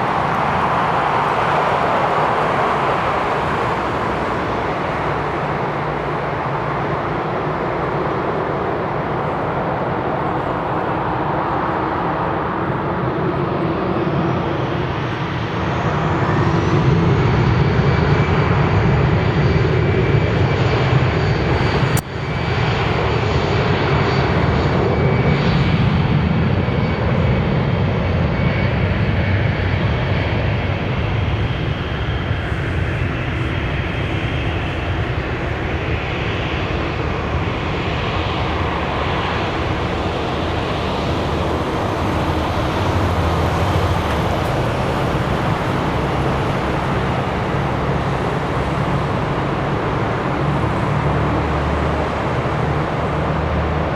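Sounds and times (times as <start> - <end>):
high jet engine whine: 0.0 - 53.9
jet engines at takeoff power: 0.0 - 53.9
click: 21.8 - 22.1.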